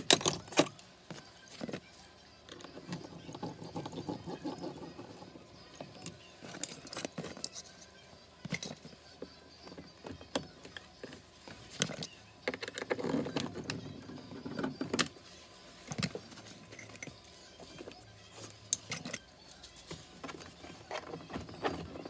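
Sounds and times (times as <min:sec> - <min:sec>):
tools and metal parts clinking: 0:00.0 - 0:01.9, 0:02.5 - 0:22.0.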